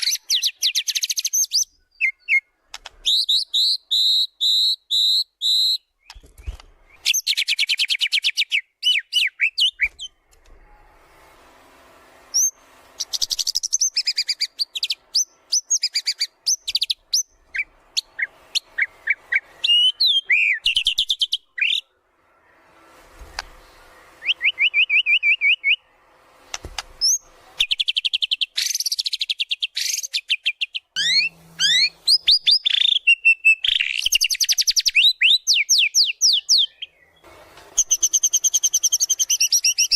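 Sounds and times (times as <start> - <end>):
songbird trills and whistles: 12.4 - 21.8, 24.2 - 25.9, 27.0 - 39.9.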